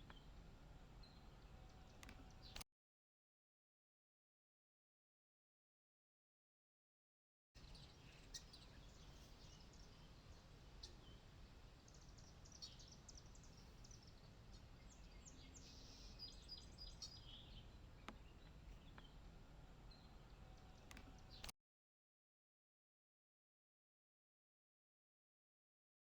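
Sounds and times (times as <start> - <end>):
bird chirps and calls: 7.6 - 19.2.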